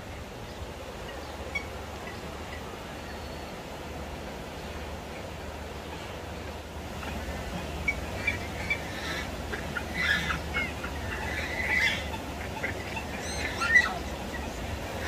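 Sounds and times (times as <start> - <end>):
birds chirping and calling: 6.9 - 15.0.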